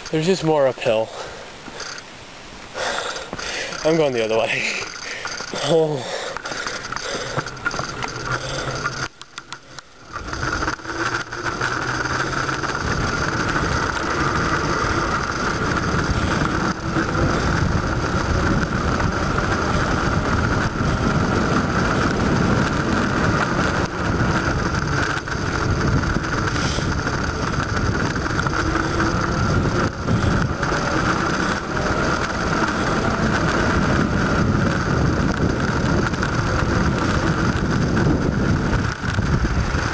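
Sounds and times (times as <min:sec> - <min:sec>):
bicycle tyres and drivetrain whir: 0:00.0 - 0:39.9
wind buffeting microphone: 0:10.1 - 0:39.9.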